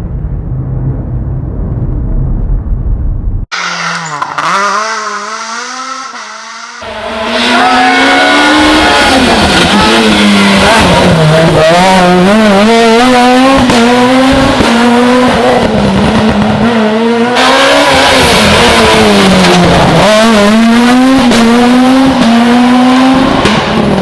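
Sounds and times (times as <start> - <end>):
low rumble: 0.0 - 3.5
rally car engines revving: 3.5 - 24.0.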